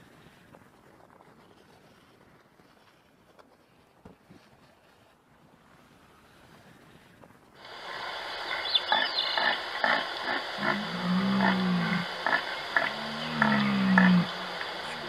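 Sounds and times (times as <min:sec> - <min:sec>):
deer stag roaring: 0:10.3 - 0:15.0.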